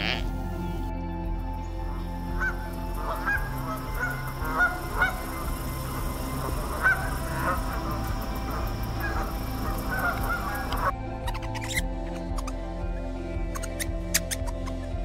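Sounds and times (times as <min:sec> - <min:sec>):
soft background music: 0:00.0 - 0:15.0
waterfowl honking: 0:02.4 - 0:10.9.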